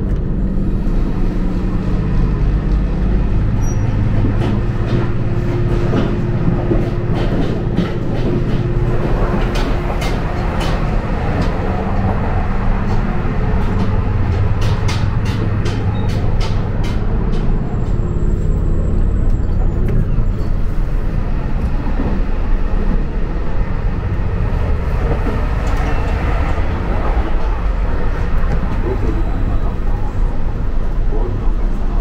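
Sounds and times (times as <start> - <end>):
train rumble inside carriage: 0.0 - 32.0.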